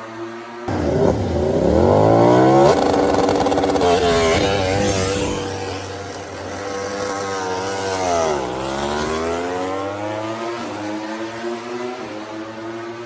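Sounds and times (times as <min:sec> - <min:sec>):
racing motorcycle engine accelerating: 0:00.7 - 0:13.0.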